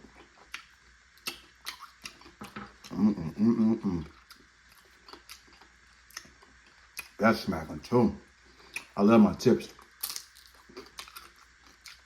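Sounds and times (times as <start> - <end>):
wet chewing and lip smacks: 0.1 - 3.0, 4.0 - 7.2, 8.6 - 9.0, 9.7 - 12.0.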